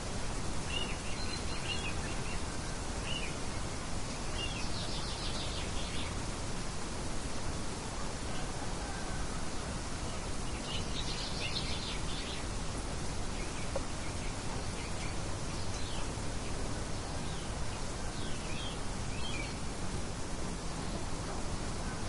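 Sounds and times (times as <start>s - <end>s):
wind: 0.0s - 22.0s
birds chirping: 10.2s - 19.8s.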